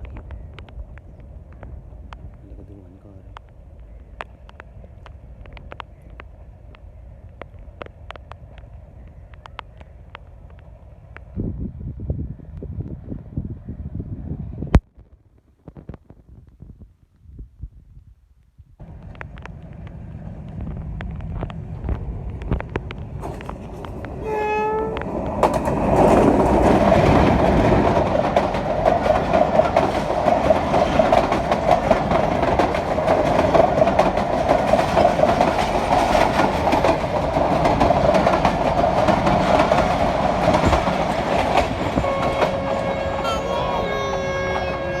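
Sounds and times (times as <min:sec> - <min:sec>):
train rumble: 0:18.8 - 0:45.0
wheels clacking on rails: 0:18.8 - 0:45.0
train horn blast: 0:24.2 - 0:25.0, 0:41.8 - 0:45.0.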